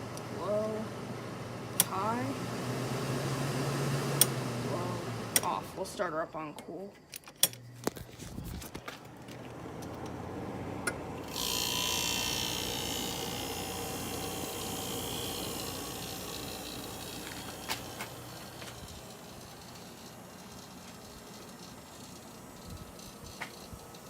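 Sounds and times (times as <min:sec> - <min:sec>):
air conditioner humming: 0:00.0 - 0:24.0
air conditioner switch click: 0:01.8 - 0:02.0, 0:04.2 - 0:04.4, 0:05.3 - 0:05.6.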